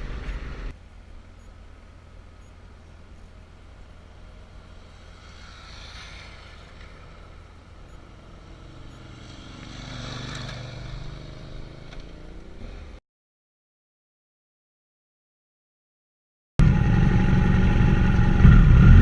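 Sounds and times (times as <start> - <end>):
wind and road noise: 0.0 - 13.0
motorcycle engine running: 16.6 - 19.0.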